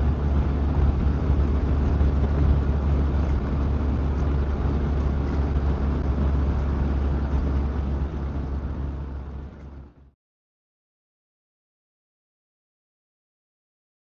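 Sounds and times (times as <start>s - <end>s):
motorcycle engine noise: 0.0s - 10.1s
wind rumble: 0.0s - 10.1s.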